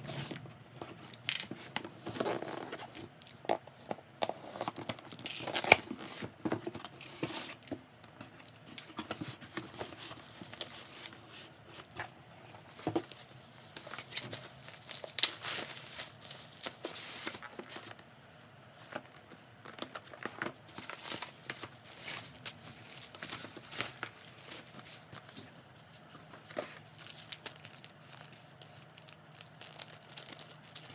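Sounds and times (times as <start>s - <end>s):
packaging crinkling and tearing: 1.0s - 6.3s, 12.6s - 18.0s, 19.8s - 25.2s, 26.3s - 30.9s.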